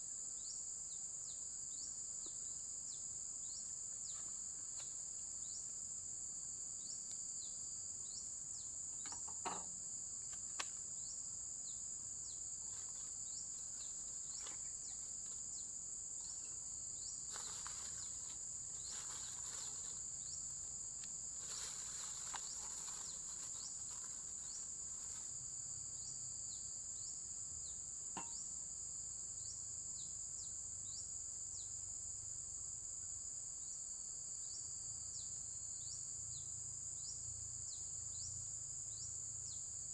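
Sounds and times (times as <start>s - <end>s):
crickets chirping: 0.0s - 39.9s
faint knocks: 9.0s - 9.7s.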